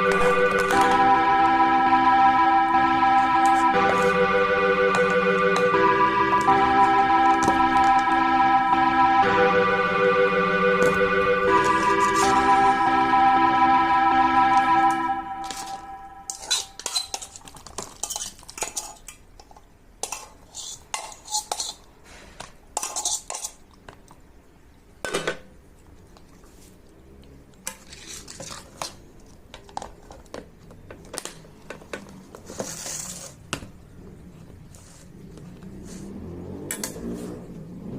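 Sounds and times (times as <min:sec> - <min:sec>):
kitchen containers clinking: 0:16.3 - 0:19.1.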